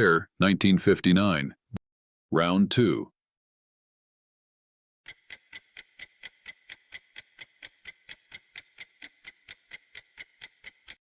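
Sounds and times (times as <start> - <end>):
clock ticking: 5.1 - 11.0.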